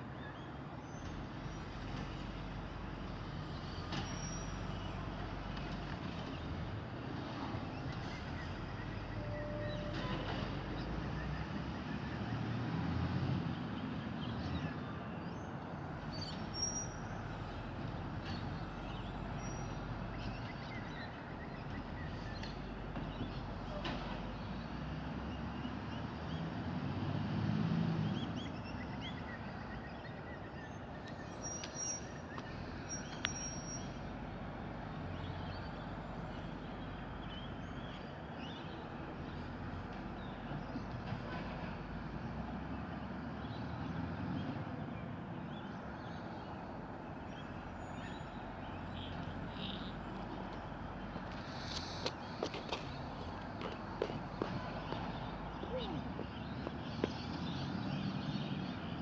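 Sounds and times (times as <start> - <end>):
vehicle engine rumbling: 45.8 - 59.0.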